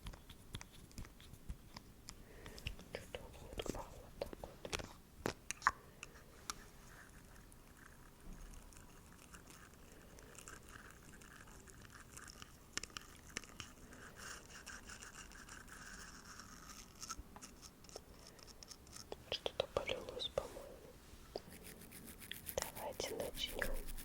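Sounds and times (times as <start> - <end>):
bristles brushing: 6.1 - 24.0.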